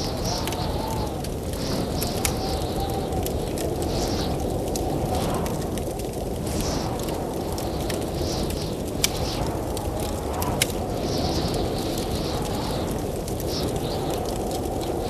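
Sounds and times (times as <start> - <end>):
blizzard wind gusts: 0.0 - 15.0
wood fire crackling: 0.0 - 15.0.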